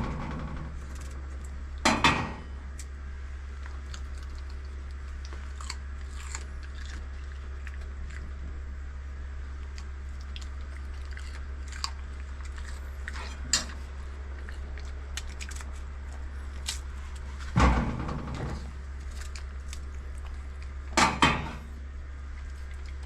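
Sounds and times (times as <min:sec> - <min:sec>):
steady low hum: 0:00.0 - 0:23.0
dog chewing fruit: 0:02.7 - 0:23.0
sharp crunching clicks: 0:03.6 - 0:08.4, 0:09.6 - 0:17.3, 0:18.0 - 0:21.1.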